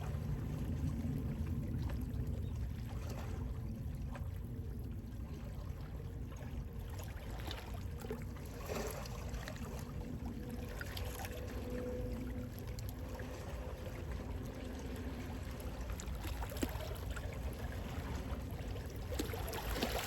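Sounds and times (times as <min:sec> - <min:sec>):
sea wind rumble: 0:00.0 - 0:20.0
small water splashes: 0:05.3 - 0:20.0.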